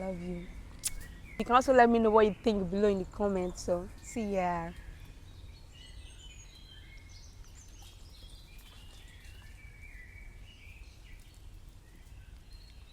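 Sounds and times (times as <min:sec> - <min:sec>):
birds chirping and whistling: 0:00.4 - 0:01.6.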